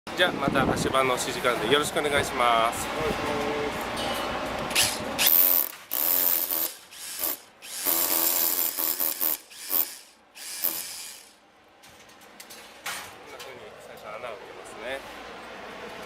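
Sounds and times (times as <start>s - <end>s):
power drill boring into wall: 4.8s - 11.4s.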